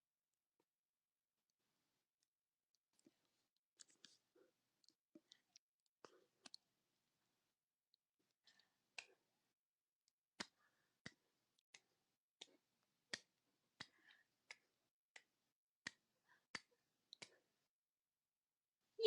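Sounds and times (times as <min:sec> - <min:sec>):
faint rhythmic clicks: 0:08.4 - 0:09.3, 0:10.4 - 0:17.5.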